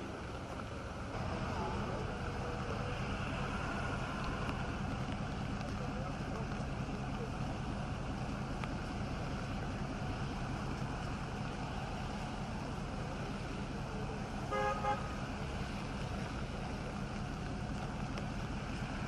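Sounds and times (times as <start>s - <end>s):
engine rumble: 0.0s - 19.0s
outdoor noise: 0.0s - 19.0s
vehicle horn toots: 14.5s - 15.2s.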